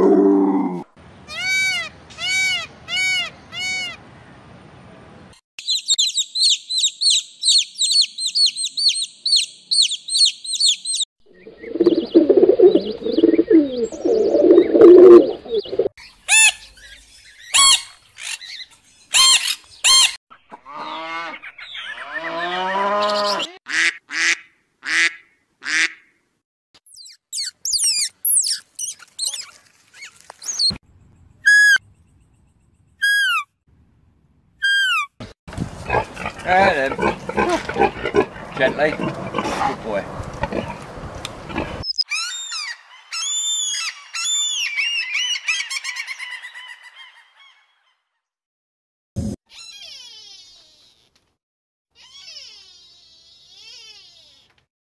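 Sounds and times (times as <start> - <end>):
bird calls: 5.6 - 22.3.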